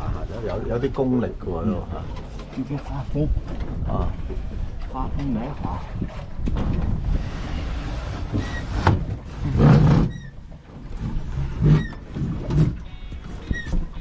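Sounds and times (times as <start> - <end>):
water noise: 0.0 - 14.0
oar squeaking: 2.0 - 14.0
dull low knocks: 3.2 - 7.2.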